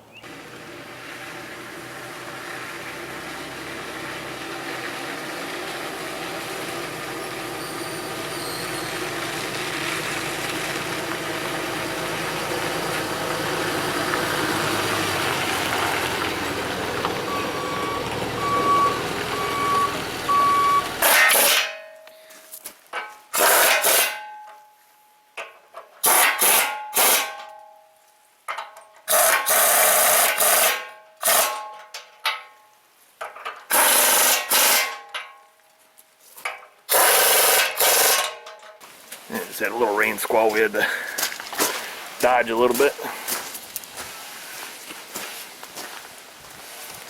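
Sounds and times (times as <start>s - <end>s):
truck engine: 0.0s - 21.8s
reversing alarm beeping: 17.2s - 20.9s.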